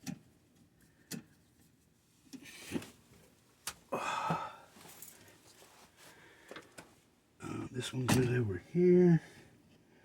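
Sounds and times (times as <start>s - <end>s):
breathy exhale: 3.9s - 4.7s.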